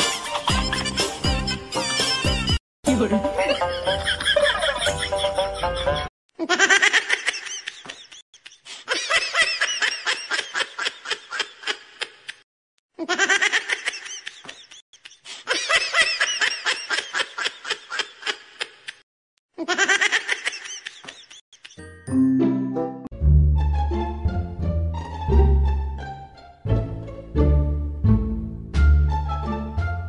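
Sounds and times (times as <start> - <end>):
person laughing: 0.1 - 1.8, 3.2 - 12.4, 13.0 - 19.0, 19.6 - 21.9.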